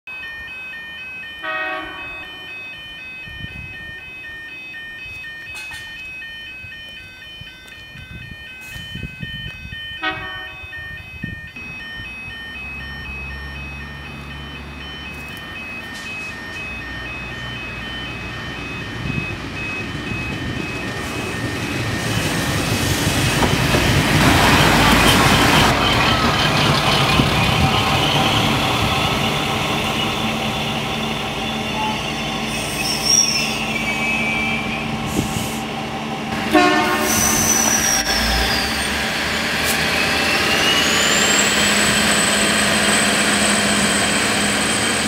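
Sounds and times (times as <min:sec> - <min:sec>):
level crossing bells ringing: 0:00.1 - 0:45.0
rail noise: 0:00.1 - 0:45.0
train horn: 0:01.4 - 0:02.4, 0:10.0 - 0:10.7, 0:31.4 - 0:35.6, 0:36.4 - 0:38.8
diesel engine hum: 0:11.6 - 0:45.0.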